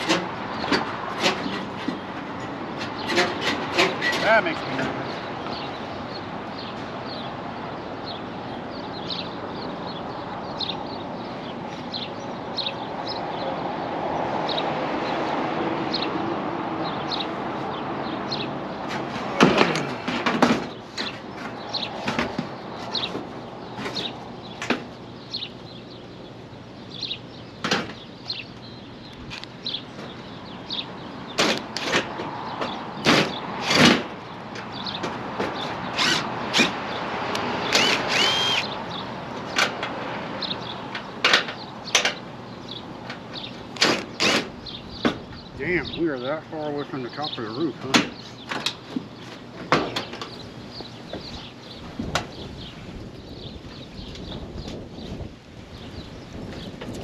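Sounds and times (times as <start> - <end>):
wind: 0.0 - 57.0
knocks and thumps on a roof: 18.8 - 24.9, 31.4 - 34.2, 47.8 - 50.2.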